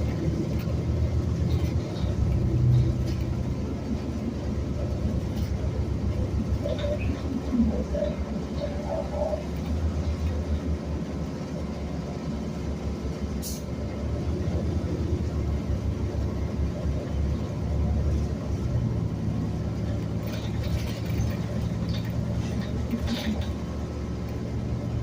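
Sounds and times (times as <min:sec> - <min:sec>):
bus engine and road rumble: 0:00.0 - 0:25.0.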